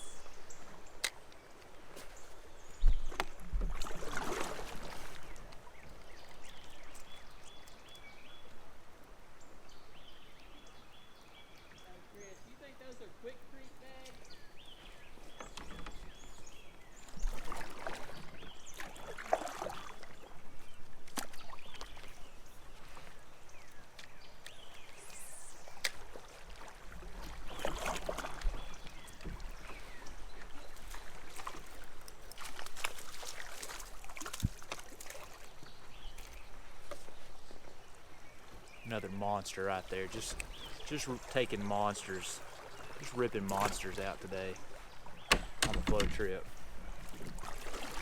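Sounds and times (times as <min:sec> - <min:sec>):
paddle splashing through water: 0:00.0 - 0:08.7, 0:14.5 - 0:48.0
sharp knocks: 0:45.3 - 0:46.3.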